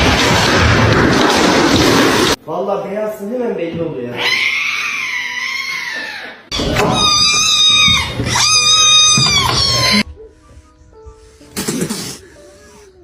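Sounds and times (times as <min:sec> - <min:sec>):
cat yowling: 0:04.2 - 0:10.0.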